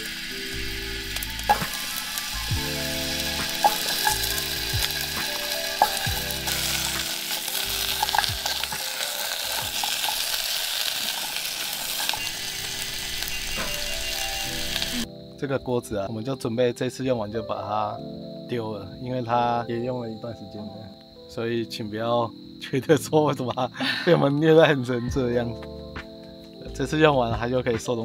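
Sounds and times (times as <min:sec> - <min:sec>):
background music with low notes: 0:00.0 - 0:10.9, 0:11.7 - 0:28.0
wood fire crackles: 0:00.0 - 0:15.1
food sizzling: 0:00.0 - 0:15.2.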